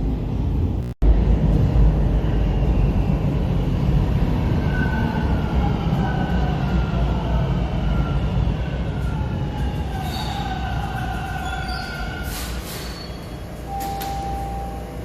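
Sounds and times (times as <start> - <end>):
subway train rumbling: 0.0 - 15.0
brakes squealing: 9.0 - 14.4.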